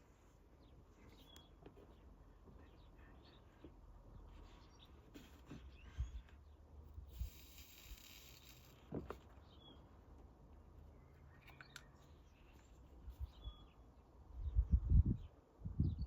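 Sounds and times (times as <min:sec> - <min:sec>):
faint bird chirps: 0:00.5 - 0:06.6, 0:10.8 - 0:13.8.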